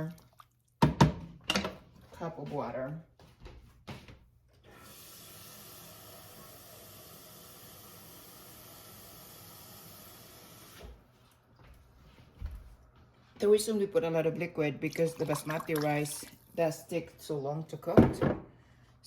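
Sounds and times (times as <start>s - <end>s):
kitchen tap running: 4.7s - 10.9s, 14.8s - 16.9s.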